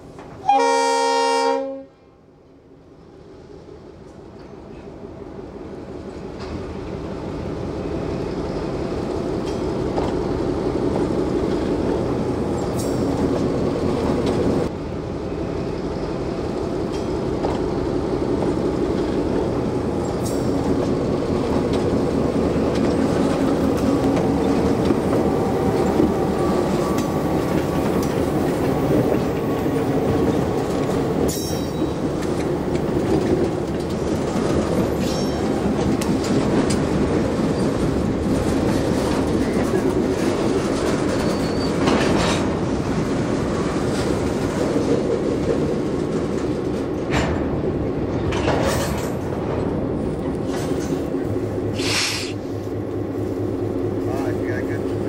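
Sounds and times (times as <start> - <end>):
diesel locomotive engine running: 3.0 - 55.0
train wheels clacking over rail joints: 9.2 - 10.4, 16.7 - 17.8, 18.4 - 52.4.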